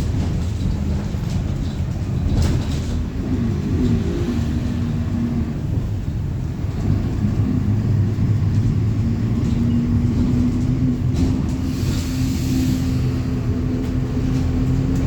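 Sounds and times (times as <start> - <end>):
bus diesel engine rumbling: 0.0 - 15.0
brief air hiss: 11.6 - 13.2.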